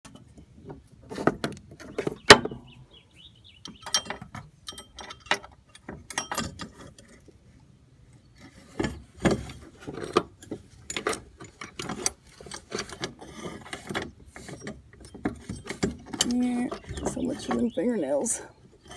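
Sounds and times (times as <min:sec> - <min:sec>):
metal parts clanking: 0:03.8 - 0:07.2, 0:08.6 - 0:18.0.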